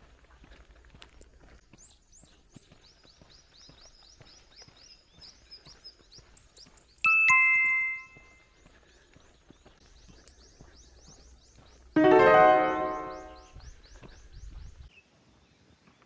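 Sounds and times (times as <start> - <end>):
two-note ding-dong chime: 7.1 - 8.2, 12.0 - 13.4
faint high chirps: 7.1 - 8.4.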